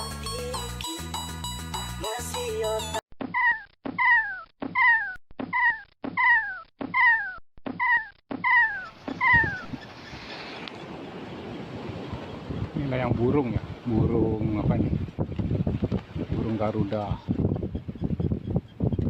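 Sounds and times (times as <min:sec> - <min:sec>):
bird of prey screaming: 0:03.4 - 0:09.8
wind noise on microphone: 0:09.0 - 0:19.0.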